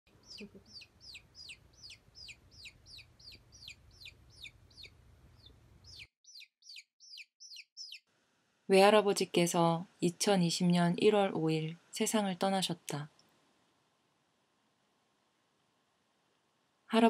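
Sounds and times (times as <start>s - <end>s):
bird chirping: 0.1s - 8.1s.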